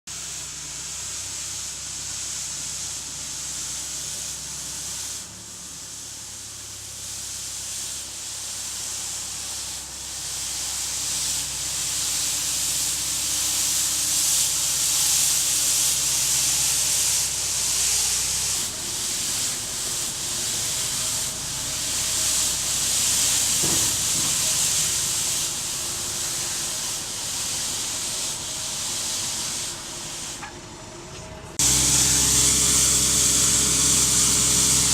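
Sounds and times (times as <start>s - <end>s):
sweeper brush scrubbing road: 0.1s - 34.9s
machine engine running: 30.8s - 34.9s.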